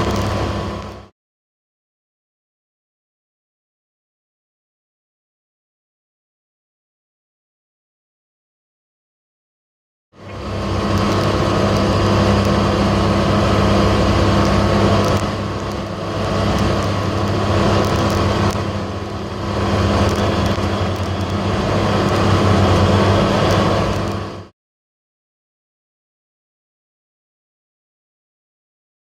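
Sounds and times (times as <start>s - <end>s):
vehicle engine humming: 0.0s - 1.1s, 10.2s - 24.5s.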